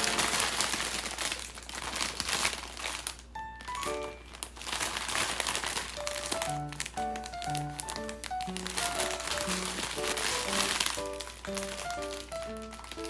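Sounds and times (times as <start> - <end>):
light background music: 0.0 - 0.8, 3.3 - 4.4, 5.4 - 13.0
plastic bags crinkling: 0.0 - 13.0.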